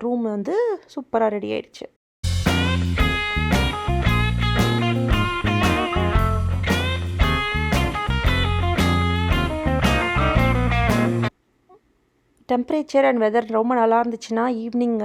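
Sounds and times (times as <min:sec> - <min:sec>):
guitar-led instrumental music: 0:02.3 - 0:11.3.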